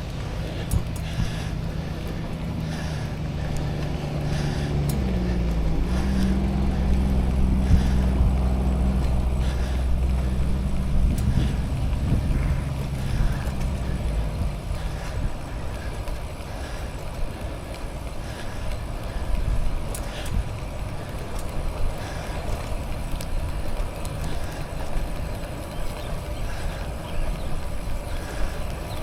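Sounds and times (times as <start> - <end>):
wind on microphone: 0.0 - 16.2
bicycle tyres rolling on pavement: 0.0 - 29.0
faint clicks: 0.3 - 29.0.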